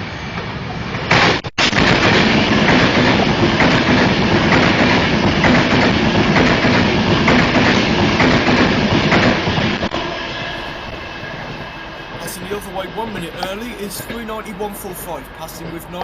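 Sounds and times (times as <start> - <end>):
train rushing past: 0.0 - 16.0.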